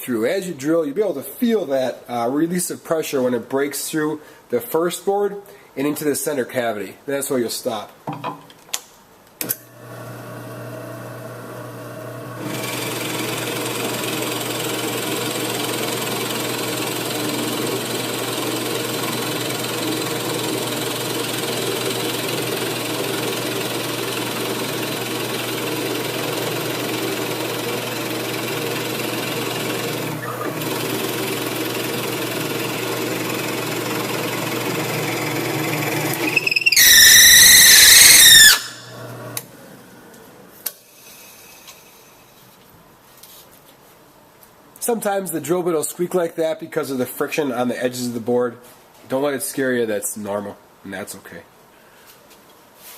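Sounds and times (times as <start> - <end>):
drill motor boring wood: 11.6 - 39.4
drill bit squealing: 34.3 - 38.9.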